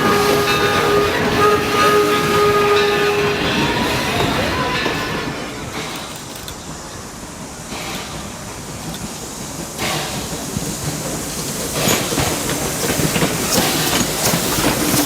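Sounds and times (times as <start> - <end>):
steam hiss: 0.0 - 15.0
wheels clicking over rails: 8.8 - 15.0.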